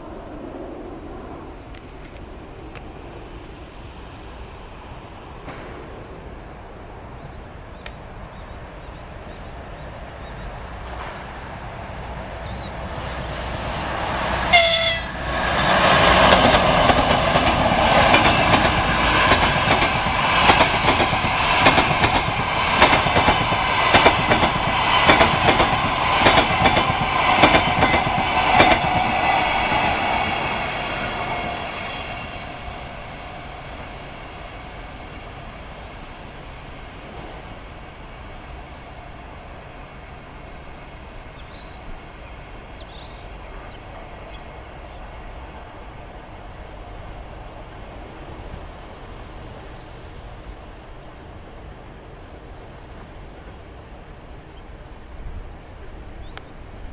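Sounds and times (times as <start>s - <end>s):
train passing at speed: 0.0s - 56.9s
train horn blast: 14.5s - 15.3s.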